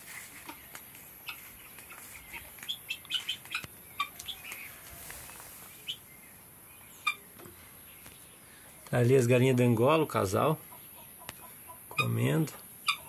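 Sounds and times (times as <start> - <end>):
bird chirps and calls: 0.1 - 8.8.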